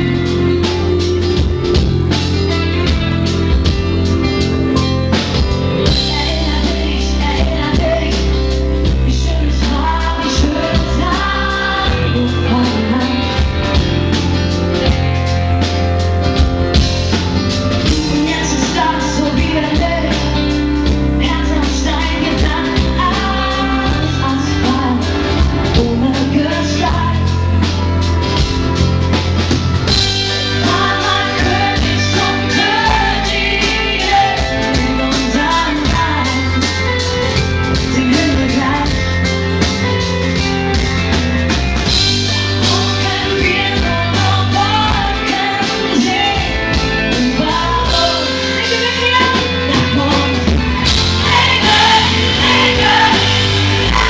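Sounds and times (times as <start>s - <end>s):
woman singing lead: 0.0s - 15.0s, 16.7s - 28.6s, 29.4s - 40.5s, 42.1s - 54.0s
drum kit: 0.0s - 54.0s
electric guitars: 0.0s - 54.0s
distorted heavy bass: 49.9s - 54.0s.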